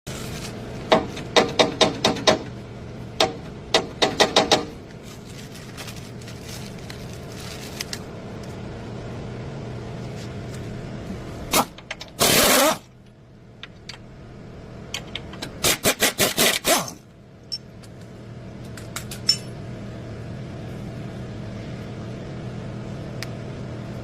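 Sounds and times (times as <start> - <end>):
low hum: 4.7 - 15.7.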